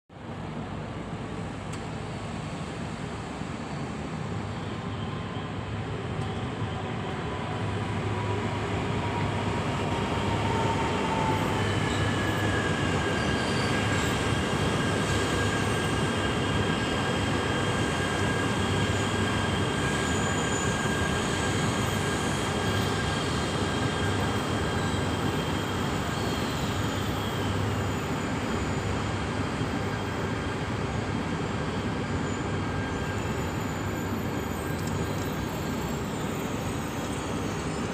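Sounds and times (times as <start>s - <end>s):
high steady squealing tones: 7.9s - 37.9s.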